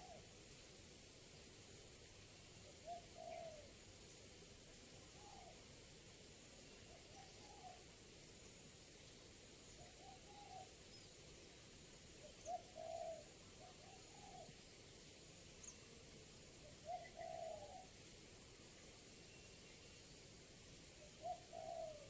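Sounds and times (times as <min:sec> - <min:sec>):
dove cooing: 0:00.0 - 0:00.2, 0:02.8 - 0:03.7, 0:07.0 - 0:07.8, 0:09.9 - 0:10.7, 0:12.4 - 0:14.6, 0:16.6 - 0:17.9, 0:21.0 - 0:22.0.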